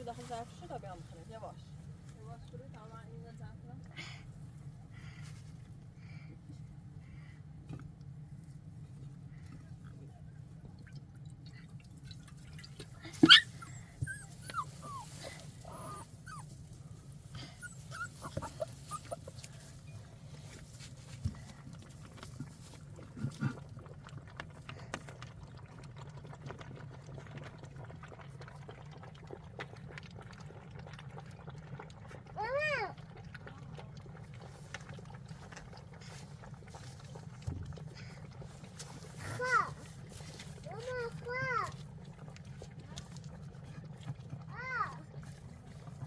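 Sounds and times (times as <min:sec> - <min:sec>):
dog whining and whimpering: 0:13.2 - 0:16.6, 0:17.4 - 0:19.6.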